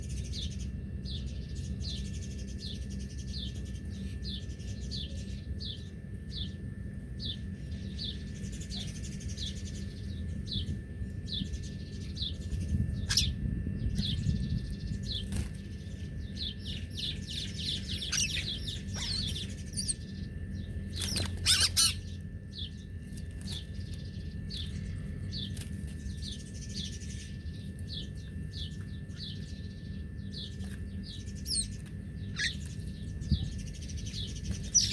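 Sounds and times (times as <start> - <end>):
low background rumble: 0.0 - 34.9
small bird chirping: 11.3 - 34.9.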